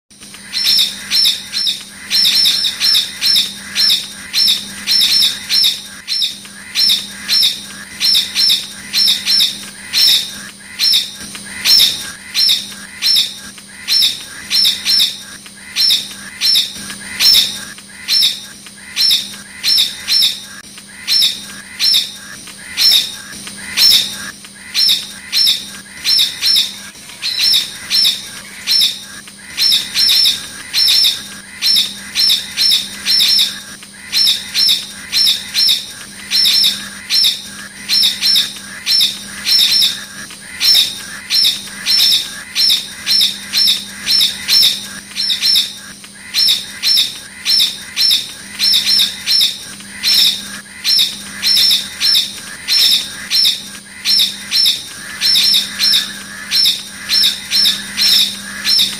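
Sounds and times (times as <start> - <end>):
bird calling shrill notes: 23.7 - 45.8, 46.4 - 58.9.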